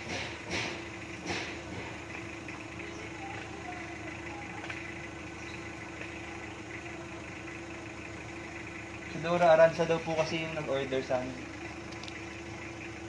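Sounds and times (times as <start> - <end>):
sharp knock: 0.0 - 1.9
vehicle engine idling: 0.0 - 13.0.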